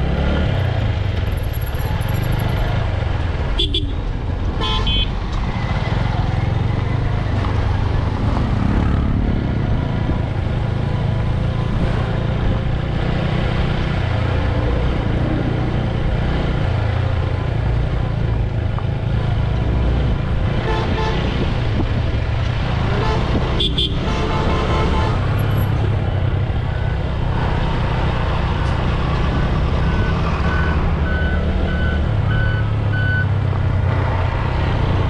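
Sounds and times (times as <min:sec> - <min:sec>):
motorcycle engine cruising: 0:00.0 - 0:04.3
wind and road noise: 0:00.0 - 0:35.0
vehicle horn beep: 0:03.6 - 0:04.0, 0:04.6 - 0:05.1, 0:22.9 - 0:25.6.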